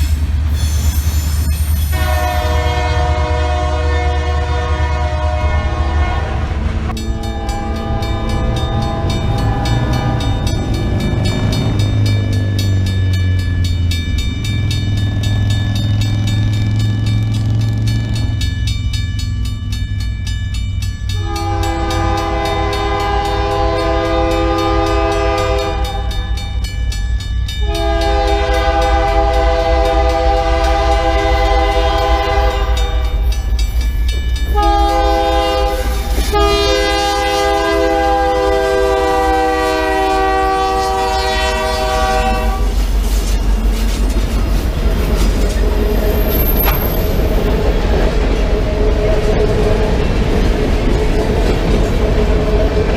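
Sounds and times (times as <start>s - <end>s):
low rumble of train: 0.0s - 52.9s
locomotive air horn blasts: 1.8s - 10.5s, 21.2s - 26.2s, 27.6s - 33.1s, 34.5s - 42.9s.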